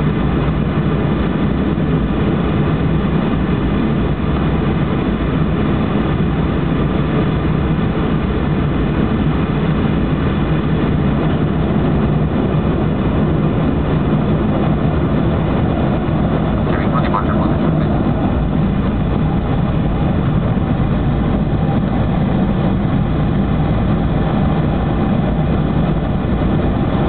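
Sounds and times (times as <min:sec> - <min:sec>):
jet engines rumbling in cabin: 0:00.0 - 0:27.0.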